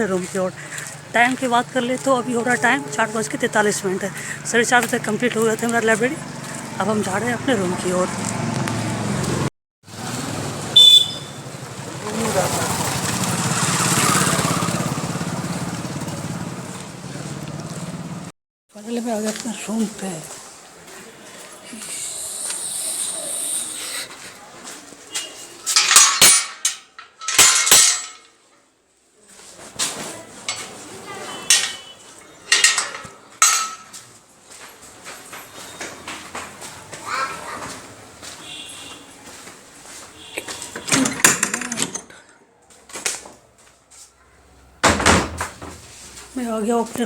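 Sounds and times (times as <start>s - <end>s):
hiss: 21.8s - 24.2s
objects clattering and knocking: 25.6s - 28.4s, 29.6s - 34.1s, 40.7s - 42.4s
metallic clinking and clattering: 25.7s - 28.4s, 32.5s - 34.0s.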